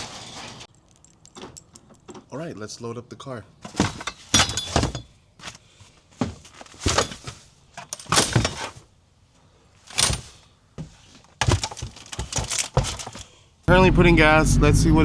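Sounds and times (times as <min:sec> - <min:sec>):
clattering: 0:03.7 - 0:05.2.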